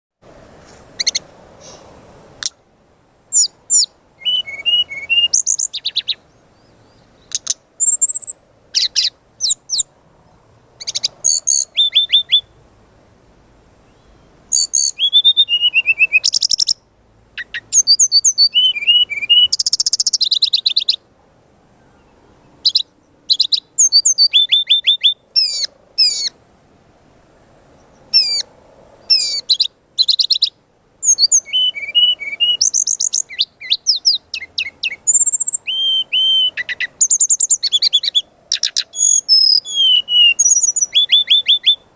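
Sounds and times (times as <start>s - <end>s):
bird singing high trills: 1.0s - 1.8s, 3.3s - 9.9s, 10.8s - 12.6s, 13.9s - 21.0s, 21.8s - 26.4s, 27.8s - 41.9s.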